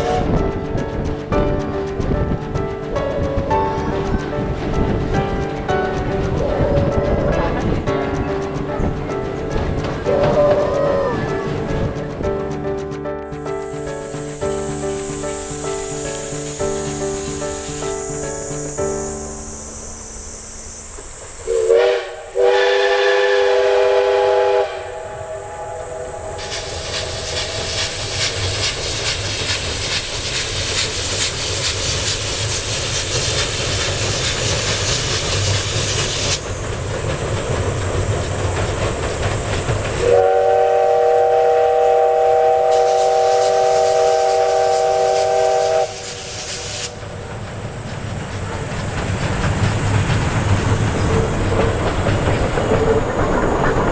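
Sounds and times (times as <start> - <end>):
steam locomotive whistle: 0.0 - 0.4, 10.0 - 11.6, 19.9 - 29.2, 40.0 - 47.1
hissing steam: 0.0 - 12.4, 13.3 - 53.9
rail clatter: 0.0 - 53.9.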